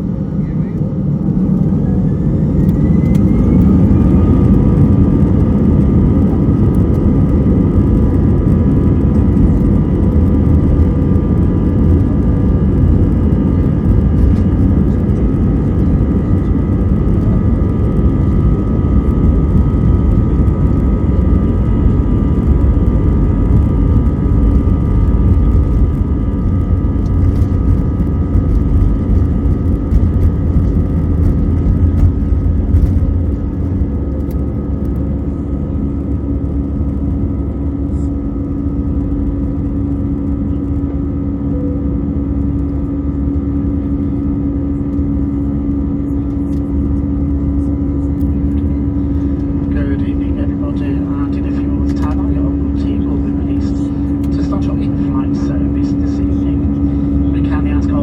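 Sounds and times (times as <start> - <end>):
jet engines spooling up: 0.1 - 35.5.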